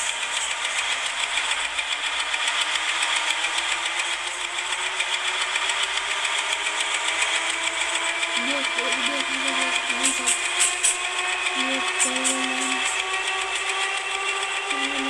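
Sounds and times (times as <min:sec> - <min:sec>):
electric train running noise: 0:00.0 - 0:15.0.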